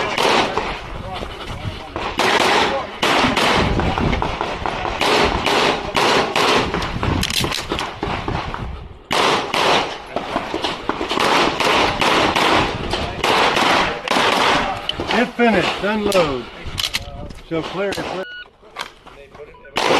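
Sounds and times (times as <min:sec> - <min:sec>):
pistol shots: 0:00.0 - 0:00.8, 0:02.0 - 0:16.3.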